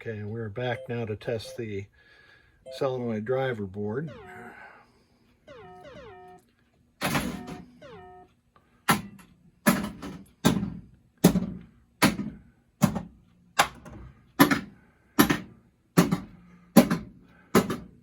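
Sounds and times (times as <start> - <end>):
pinball solenoids clacking: 7.0 - 8.3.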